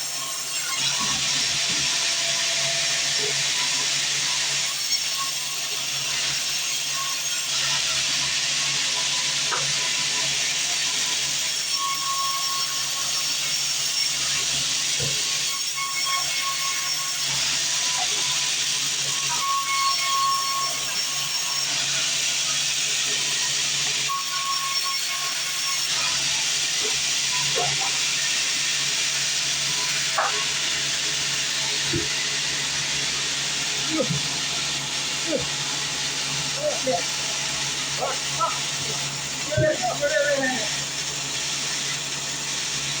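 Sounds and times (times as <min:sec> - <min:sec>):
bandsaw cutting timber: 0:00.0 - 0:43.0.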